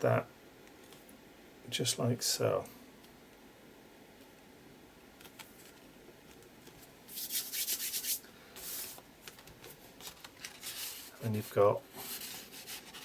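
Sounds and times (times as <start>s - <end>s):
hand rubbing paper: 7.1s - 9.0s, 10.0s - 13.0s.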